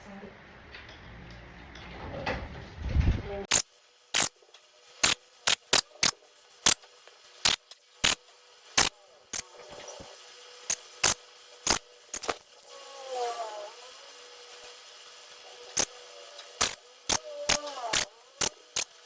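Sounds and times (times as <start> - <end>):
sharp irregular clicks: 3.5 - 4.4, 5.0 - 6.8, 7.4 - 8.2, 8.8 - 9.5, 10.7 - 12.4, 16.6 - 19.0.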